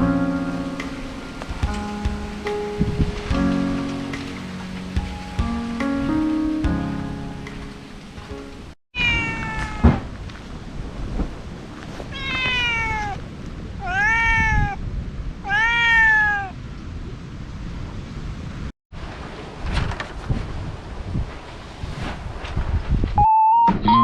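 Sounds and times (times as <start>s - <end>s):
cat meowing: 9.0s - 10.0s, 12.1s - 13.2s, 13.8s - 14.8s, 15.4s - 16.6s.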